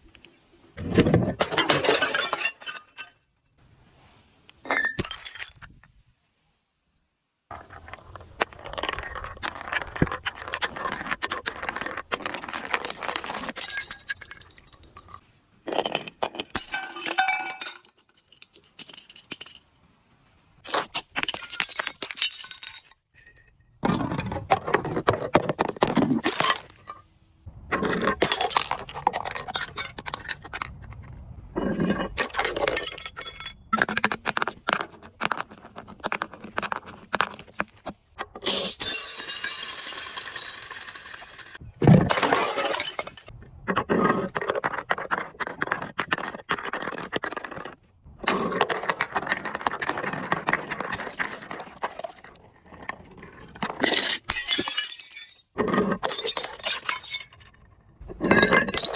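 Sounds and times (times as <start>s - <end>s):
glass bottles breaking and crunching: 1.1s - 3.3s, 4.7s - 5.8s, 12.6s - 19.6s, 20.7s - 24.2s, 31.6s - 34.4s, 38.4s - 43.3s, 53.5s - 58.9s.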